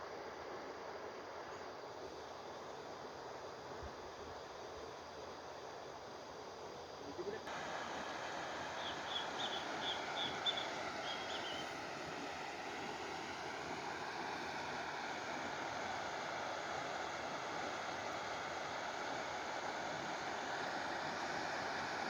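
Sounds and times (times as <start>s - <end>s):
river water rushing: 7.5s - 22.0s
bird chirping: 8.8s - 11.7s.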